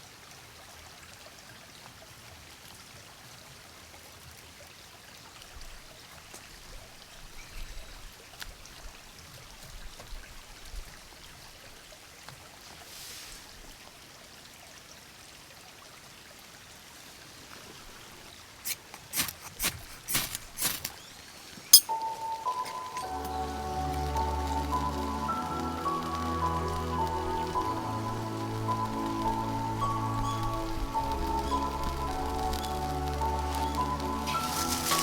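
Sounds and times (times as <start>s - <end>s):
steady outdoor hiss: 12.7s - 14.1s, 16.7s - 35.0s
faint rustles and knocks: 18.7s - 23.4s.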